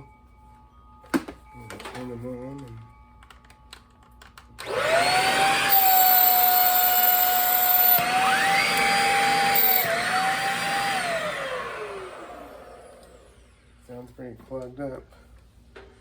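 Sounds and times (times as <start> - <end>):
stick vacuum motor whine: 4.6 - 13.5.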